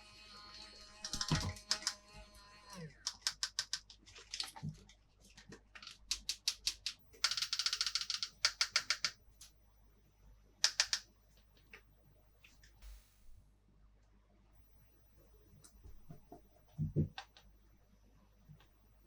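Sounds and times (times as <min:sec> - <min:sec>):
plastic toy pieces clicking: 0:01.0 - 0:02.0, 0:03.1 - 0:04.0, 0:05.7 - 0:09.2, 0:10.6 - 0:11.0.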